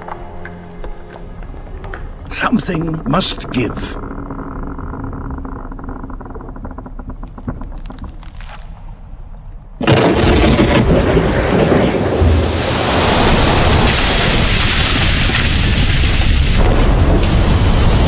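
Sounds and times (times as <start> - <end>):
ice cracking and creaking: 1.8 - 9.2, 9.8 - 18.0
ice crashing down: 9.8 - 18.0.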